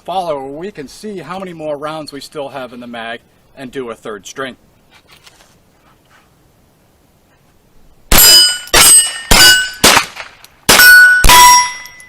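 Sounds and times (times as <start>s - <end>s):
rifle shots: 8.1s - 11.8s
metallic ring of steel targets: 8.1s - 12.0s.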